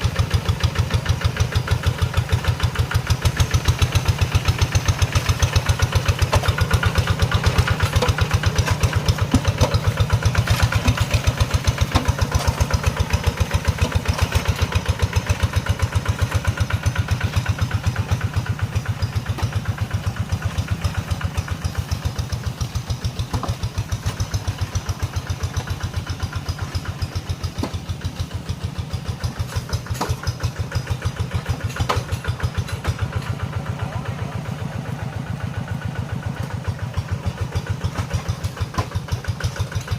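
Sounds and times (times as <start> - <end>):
small tractor engine running: 0.0 - 39.9.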